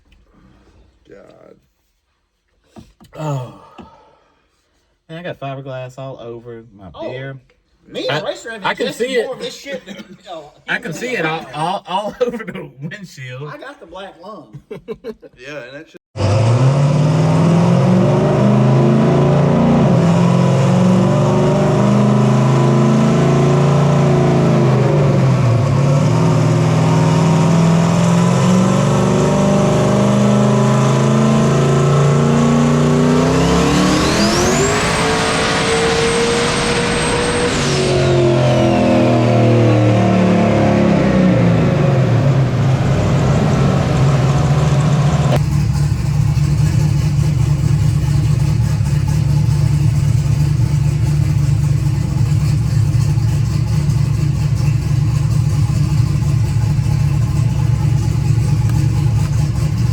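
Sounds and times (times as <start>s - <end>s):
truck engine revving: 16.2s - 59.9s.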